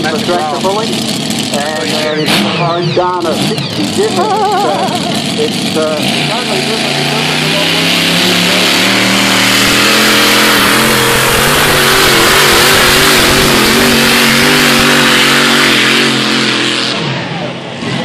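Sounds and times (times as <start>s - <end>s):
v-eight engine at full throttle: 0.0s - 18.0s.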